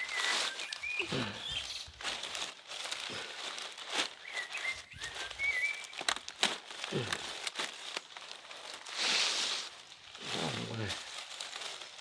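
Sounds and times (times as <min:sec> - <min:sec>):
small bird chirps: 0:00.0 - 0:02.0, 0:04.2 - 0:06.0
rustling and crinkling: 0:00.0 - 0:12.0.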